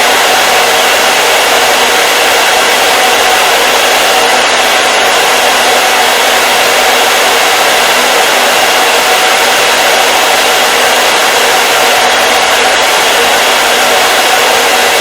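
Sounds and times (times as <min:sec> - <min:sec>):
hair dryer air rushing: 0:00.0 - 0:15.0.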